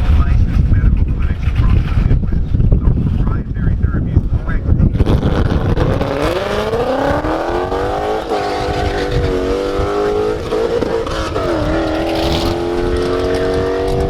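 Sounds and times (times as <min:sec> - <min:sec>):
car engine accelerating hard: 0:05.0 - 0:14.0.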